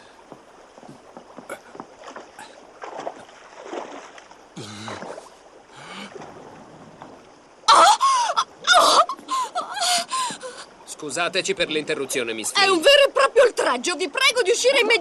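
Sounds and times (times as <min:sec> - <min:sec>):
bathwater sloshing and splashing: 0:01.1 - 0:07.4
person crying out: 0:07.7 - 0:10.1.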